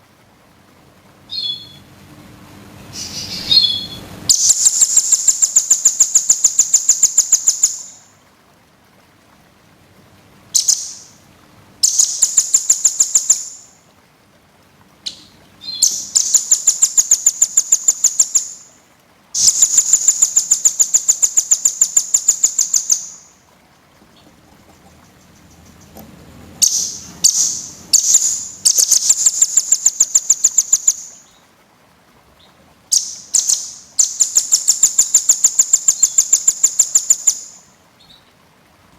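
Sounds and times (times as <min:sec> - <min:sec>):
songbird singing rapid trills: 0:01.3 - 0:01.9, 0:02.9 - 0:08.1, 0:10.6 - 0:11.1, 0:11.8 - 0:13.7, 0:15.0 - 0:18.7, 0:19.4 - 0:23.3, 0:26.6 - 0:31.5, 0:32.4 - 0:38.3.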